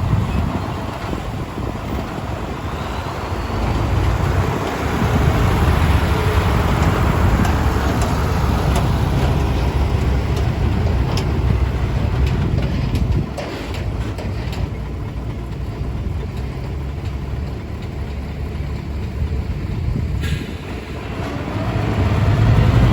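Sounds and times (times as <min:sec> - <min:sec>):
diesel truck low rumble: 0:00.0 - 0:22.9.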